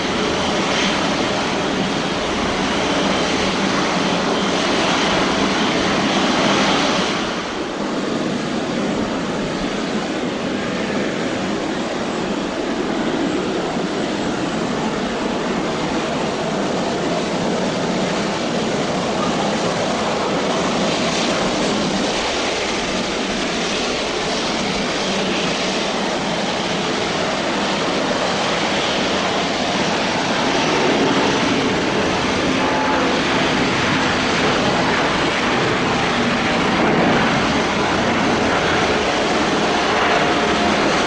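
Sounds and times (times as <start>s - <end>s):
jet engines running: 0.0s - 41.0s.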